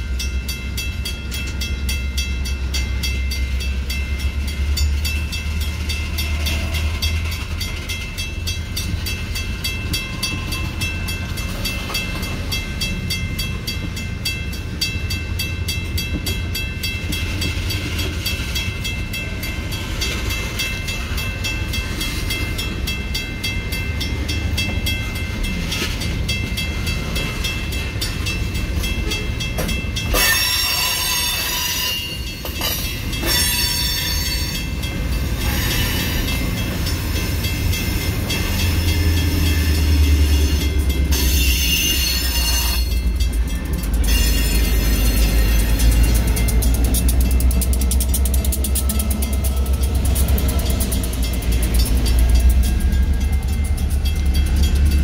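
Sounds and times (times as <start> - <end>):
train wheels rumbling on rail: 0.0 - 55.0
wheels clicking over rail joints: 0.2 - 55.0
high wheel squeal: 30.1 - 34.6, 35.4 - 36.5, 38.4 - 43.1, 44.0 - 46.1.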